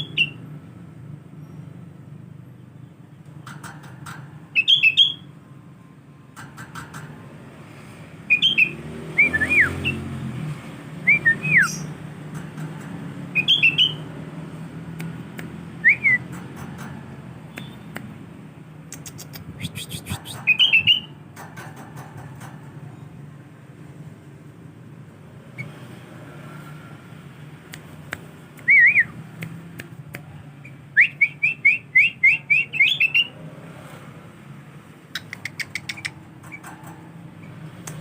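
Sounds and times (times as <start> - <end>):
bulbul chirping: 4.5 - 5.3, 8.2 - 10.1, 11.1 - 12.0, 13.3 - 14.1, 18.8 - 21.2, 35.1 - 36.6.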